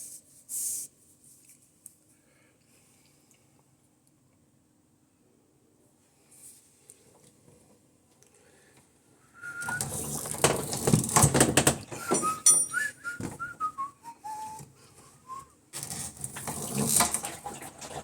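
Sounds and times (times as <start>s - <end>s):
person whistling: 9.3s - 9.9s, 12.0s - 15.6s
rustling and clattering objects: 9.6s - 13.7s.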